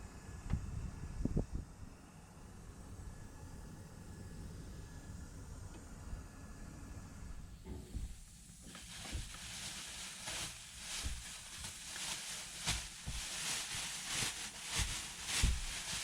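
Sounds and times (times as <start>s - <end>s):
dull thumps: 7.7s - 16.0s
packaging rustling and crinkling: 8.4s - 16.0s.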